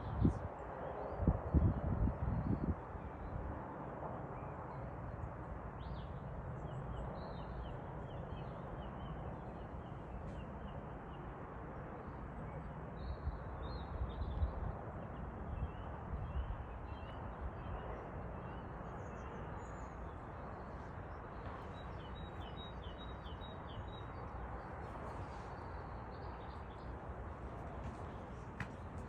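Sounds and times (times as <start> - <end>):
wind on microphone: 0.0 - 3.6.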